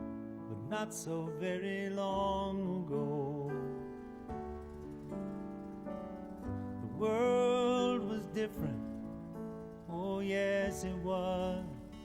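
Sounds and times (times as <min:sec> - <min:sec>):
soft guitar chords: 0:00.0 - 0:12.0
person singing slow song: 0:00.5 - 0:04.2, 0:06.8 - 0:09.0, 0:09.8 - 0:12.0.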